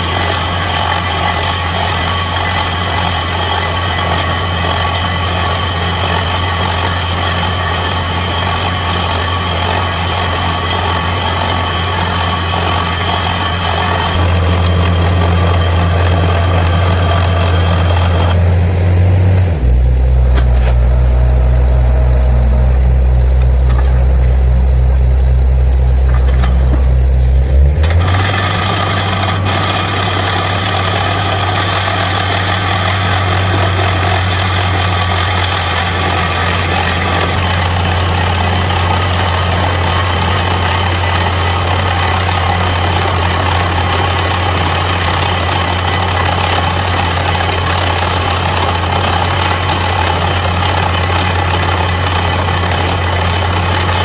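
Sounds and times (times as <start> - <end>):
diesel engine droning: 0.0 - 54.0
compressed air hissing: 20.4 - 20.9.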